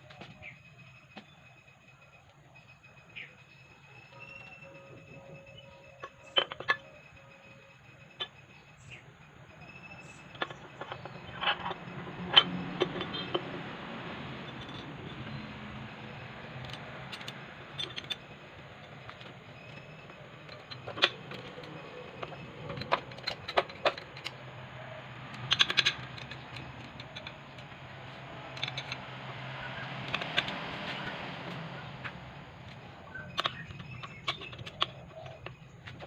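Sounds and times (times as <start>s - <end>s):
metallic clinks of tools: 14.4s - 24.4s
cluster of clicks: 25.3s - 27.9s, 29.7s - 36.0s.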